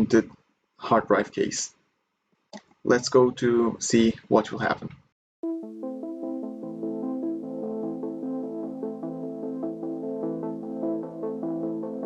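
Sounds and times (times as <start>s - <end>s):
synthesizer music: 5.4s - 12.0s.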